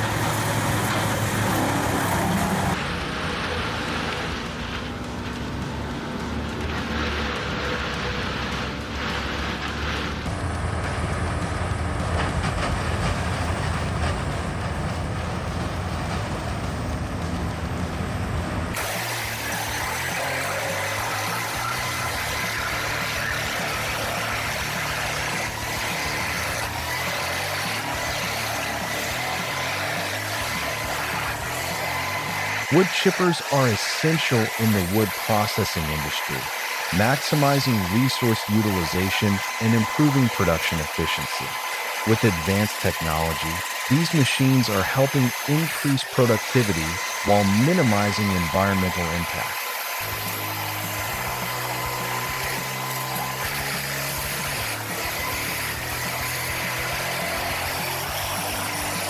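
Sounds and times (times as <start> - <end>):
wood chipper running: 0.0 - 59.0.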